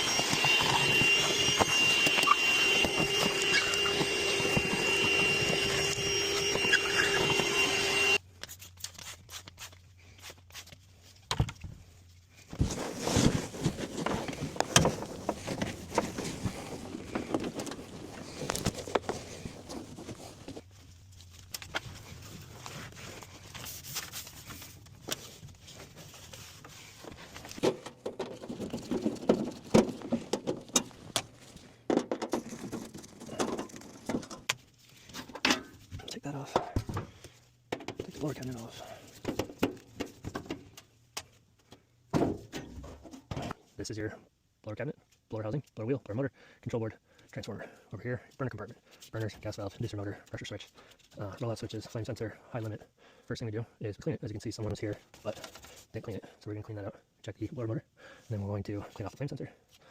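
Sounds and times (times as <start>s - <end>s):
hum with high whistling tone: 0.0s - 8.2s.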